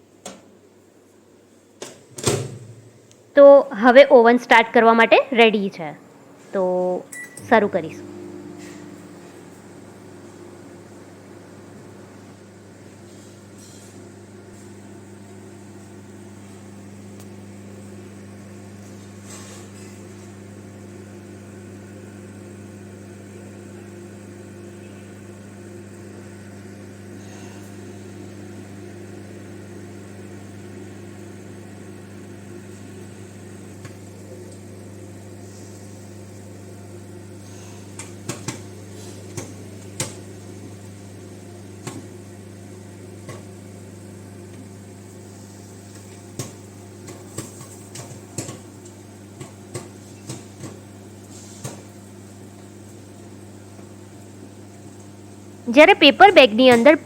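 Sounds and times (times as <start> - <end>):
microwave oven humming: 0.0 - 57.0.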